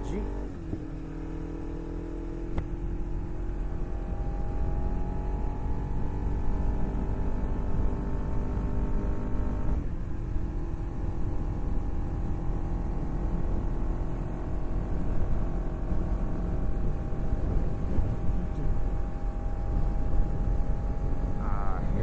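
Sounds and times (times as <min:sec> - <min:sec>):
motorcycle engine running: 0:00.0 - 0:22.0
dense low rumble: 0:09.7 - 0:22.0.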